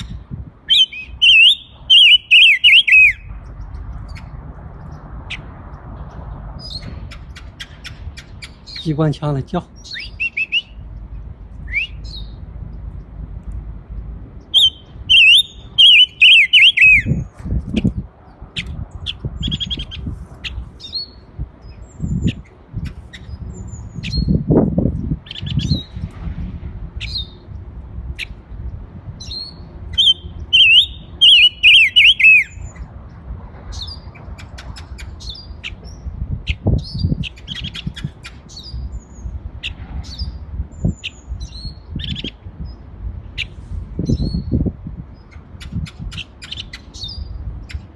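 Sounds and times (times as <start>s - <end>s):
songbird singing rapid notes: 0.0s - 13.2s, 14.4s - 26.0s, 29.2s - 47.9s
bird chirps: 0.7s - 5.5s, 9.6s - 10.8s, 11.6s - 12.4s, 14.4s - 17.3s, 29.2s - 32.9s
low rumbling noise: 3.1s - 16.2s, 17.0s - 31.2s.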